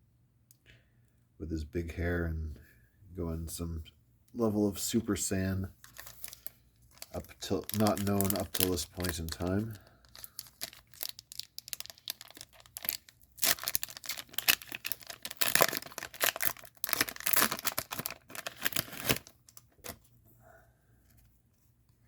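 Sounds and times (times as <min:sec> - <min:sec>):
plastic wrapper crinkling and tearing: 0:05.8 - 0:20.0.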